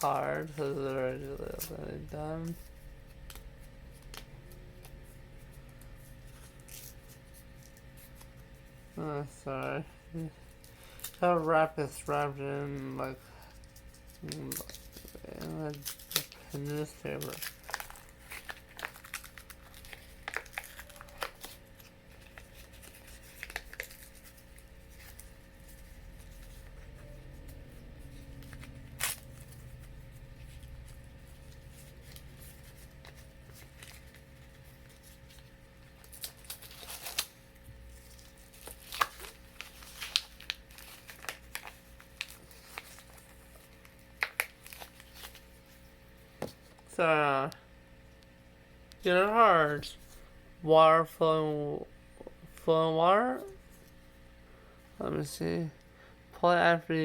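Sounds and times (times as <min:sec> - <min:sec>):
newspaper tearing and crumpling: 0:00.0 - 0:09.6, 0:10.5 - 0:46.0.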